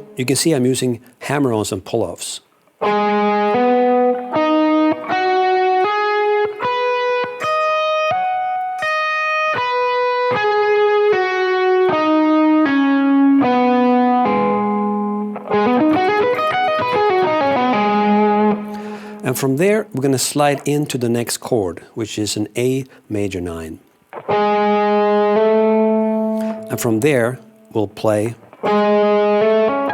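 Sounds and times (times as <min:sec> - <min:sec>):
electric guitar arpeggio: 0:00.0 - 0:00.2, 0:02.8 - 0:20.6, 0:24.1 - 0:27.7, 0:28.4 - 0:29.9.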